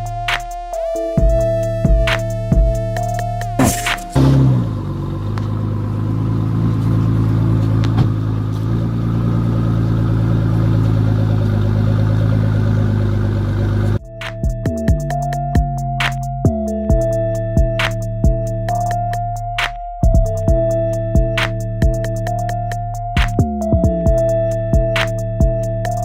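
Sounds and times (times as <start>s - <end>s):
car engine idling: 1.2s - 14.1s.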